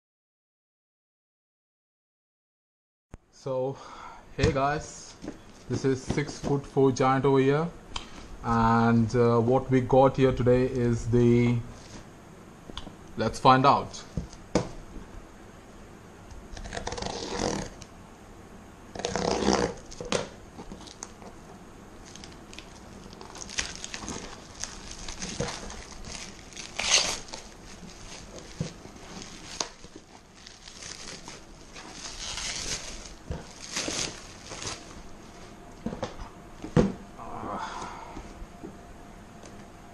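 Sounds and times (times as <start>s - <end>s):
plastic and paper crinkling: 19.8s - 21.3s, 22.0s - 36.1s.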